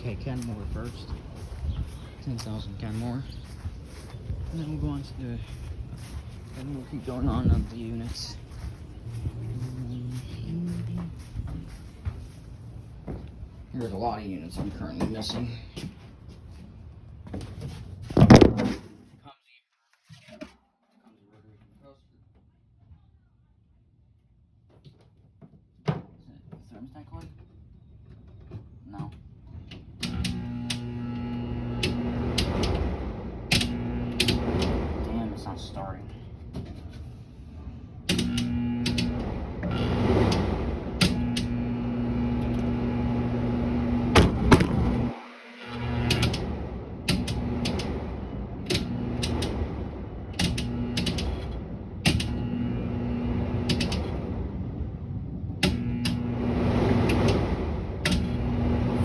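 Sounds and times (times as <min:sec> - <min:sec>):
person talking: 0:00.0 - 0:01.4, 0:02.0 - 0:03.6, 0:04.4 - 0:11.9, 0:13.7 - 0:15.9
air conditioner humming: 0:00.0 - 0:19.0, 0:28.8 - 0:59.0
sharp relay clicks: 0:33.5 - 0:34.7, 0:38.1 - 0:39.2, 0:45.8 - 0:46.5, 0:47.1 - 0:48.0, 0:48.7 - 0:49.6, 0:50.3 - 0:52.6, 0:53.6 - 0:54.1, 0:55.6 - 0:56.3.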